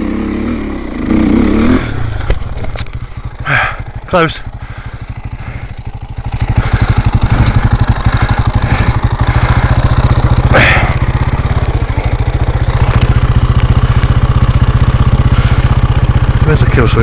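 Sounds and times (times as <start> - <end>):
dirt bike engine idling: 0.0 - 17.0.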